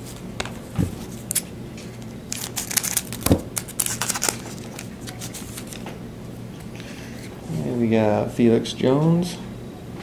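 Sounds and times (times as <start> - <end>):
foil wrapper crinkling: 2.3 - 5.9.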